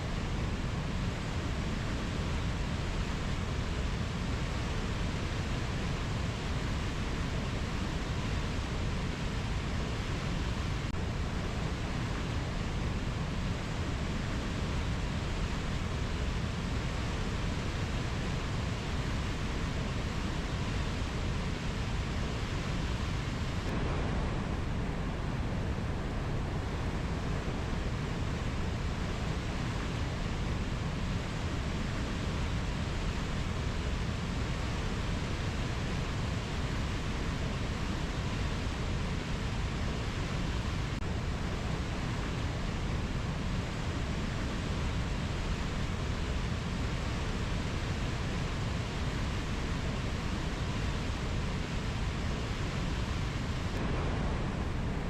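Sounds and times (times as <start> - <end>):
steady low rushing noise: 23.2 - 30.9, 51.7 - 55.0.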